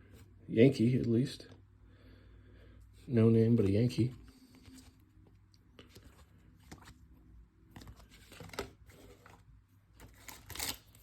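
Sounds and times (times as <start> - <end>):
trading cards rustling and clicking: 7.7 - 11.0.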